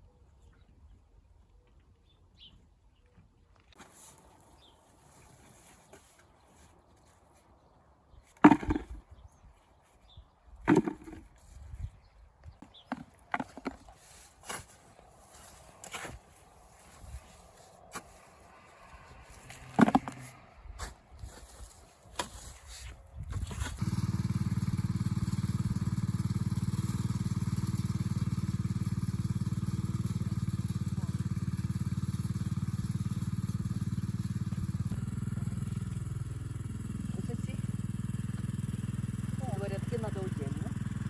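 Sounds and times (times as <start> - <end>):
engine running with low pulse: 23.3 - 41.0.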